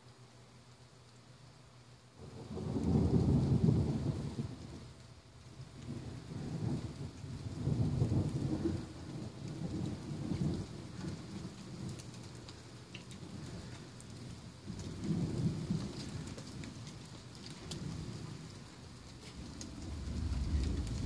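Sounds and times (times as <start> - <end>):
rain and dripping: 0.0 - 21.0
thunder rumbling: 2.2 - 5.0, 5.6 - 21.0.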